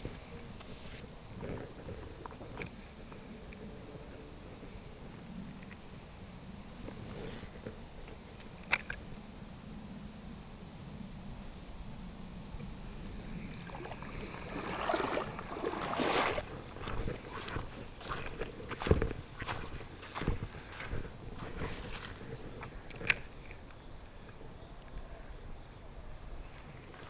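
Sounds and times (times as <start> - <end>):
scuffling noises: 13.7 - 22.8.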